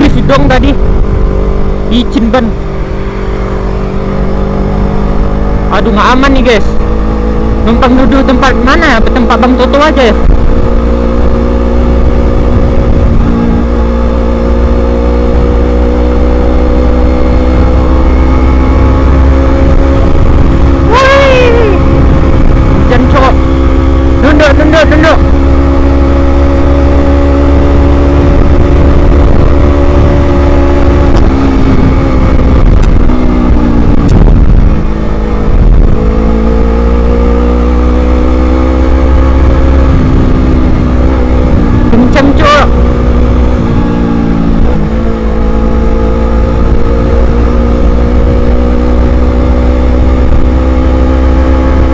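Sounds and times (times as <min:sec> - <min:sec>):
motorcycle engine running: 0:00.0 - 0:51.9
wind buffeting microphone: 0:10.2 - 0:16.2, 0:17.1 - 0:24.2, 0:25.2 - 0:51.9.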